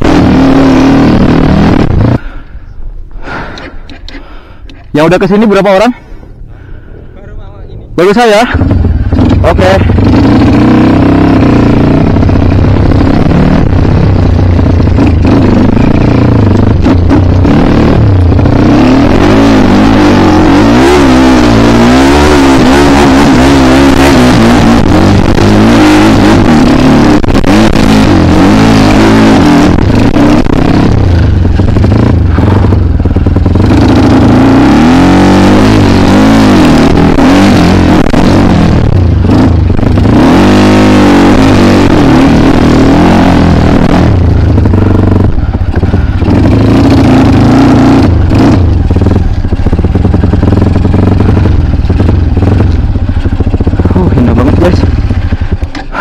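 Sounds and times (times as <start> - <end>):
dirt bike engine revving: 0.0 - 2.4, 8.0 - 56.0.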